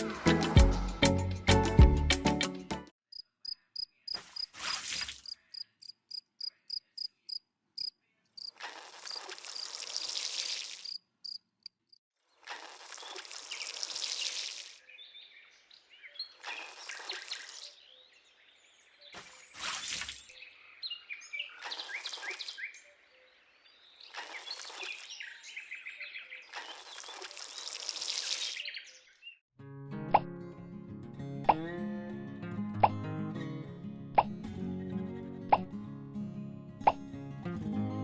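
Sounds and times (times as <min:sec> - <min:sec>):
insect chirping: 0:03.1 - 0:04.5, 0:05.2 - 0:12.0.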